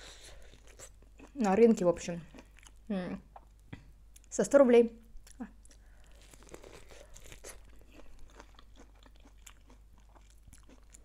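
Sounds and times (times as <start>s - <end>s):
crunchy food chewing: 5.2s - 11.0s.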